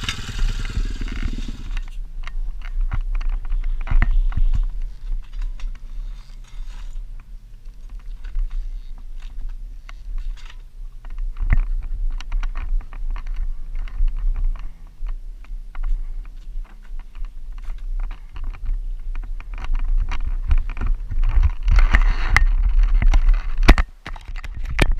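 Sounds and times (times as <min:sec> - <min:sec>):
faint motorbike engine: 0:00.0 - 0:02.0
wind rumble: 0:00.0 - 0:24.9.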